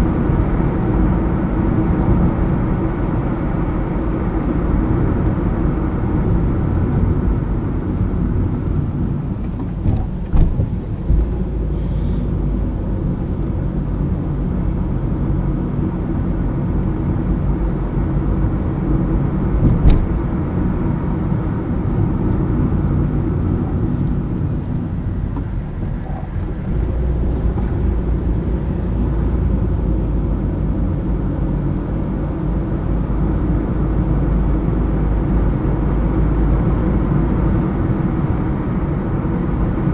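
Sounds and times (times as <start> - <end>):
car road and engine noise: 0.0 - 39.9
brief knocks: 9.6 - 11.3.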